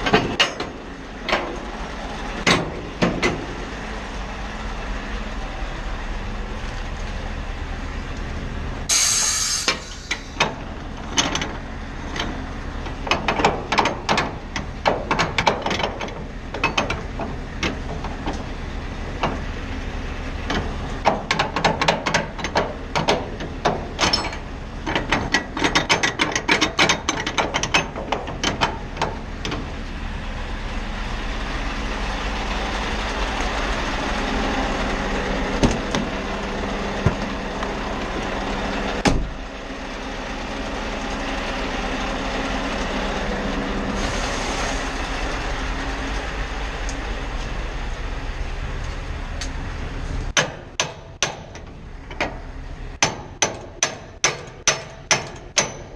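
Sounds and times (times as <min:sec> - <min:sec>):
truck engine idling: 0:00.0 - 0:55.9
air hiss: 0:08.9 - 0:10.4
rapid clicking and rattling knocks: 0:20.5 - 0:29.7.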